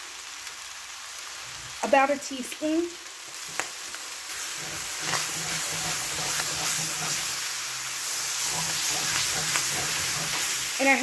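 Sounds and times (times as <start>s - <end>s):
meat sizzling in a skillet: 0.0s - 11.0s
wooden spatula stirring: 3.4s - 11.0s.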